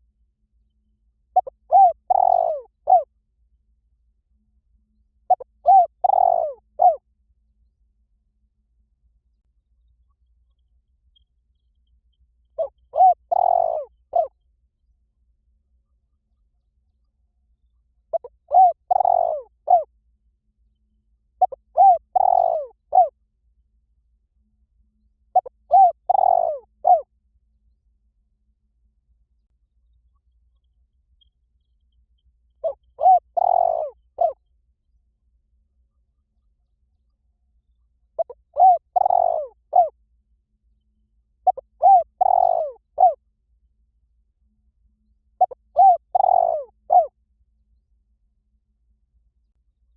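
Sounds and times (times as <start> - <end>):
dove cooing: 1.4 - 3.1, 5.3 - 7.0, 12.6 - 14.3, 18.1 - 19.9, 21.4 - 23.1, 25.3 - 27.0, 32.6 - 34.4, 38.2 - 40.0, 41.4 - 43.2, 45.4 - 47.1.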